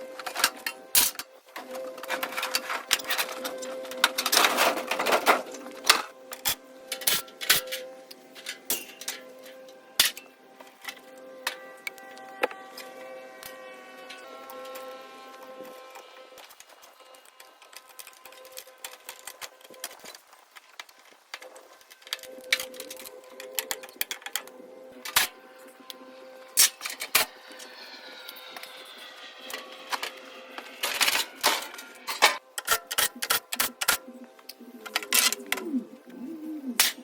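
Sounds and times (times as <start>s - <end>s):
steady hum: 21.4s - 32.5s.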